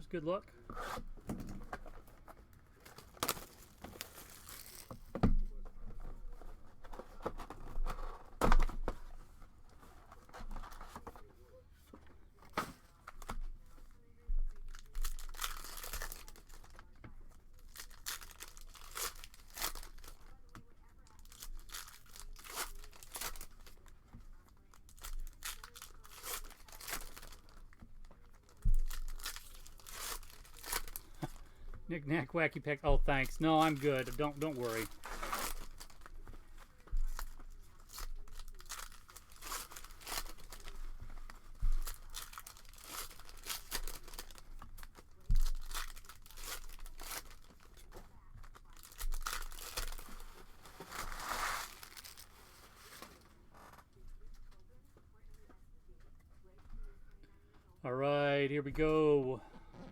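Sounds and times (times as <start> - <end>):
wrapping crackling and tearing: 0.6 - 11.6, 12.4 - 54.8.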